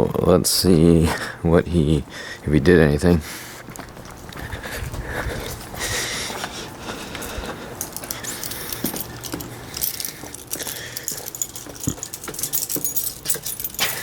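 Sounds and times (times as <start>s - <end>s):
keys jangling: 7.2s - 14.0s.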